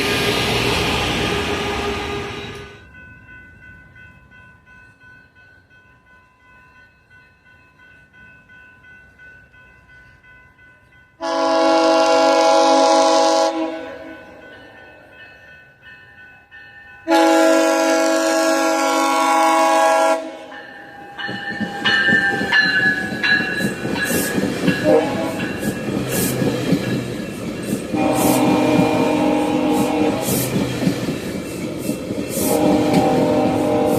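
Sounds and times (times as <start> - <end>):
train air horn blasts: 11.2 - 14.2, 17.1 - 20.5, 24.8 - 25.6, 27.9 - 30.6, 32.4 - 33.9
train wheels clacking on rails: 20.8 - 33.9.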